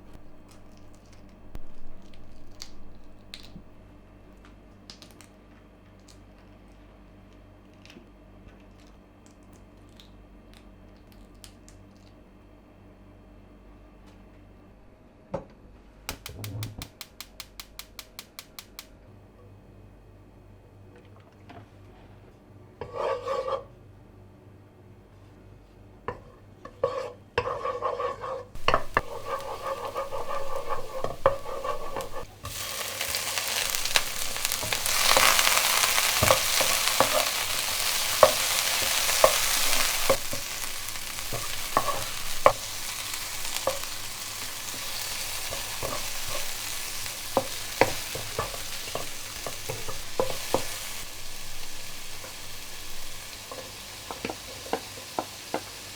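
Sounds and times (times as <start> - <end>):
food sizzling in hot oil: 0.0 - 3.8, 28.6 - 55.9
utensil scraping a pan: 22.8 - 23.7, 26.7 - 55.6.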